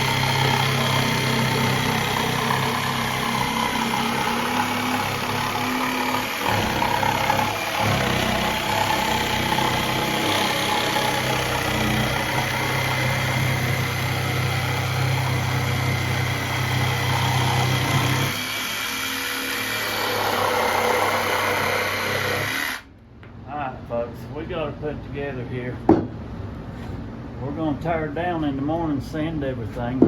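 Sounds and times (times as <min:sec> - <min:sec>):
machine motor humming: 0:00.0 - 0:22.9.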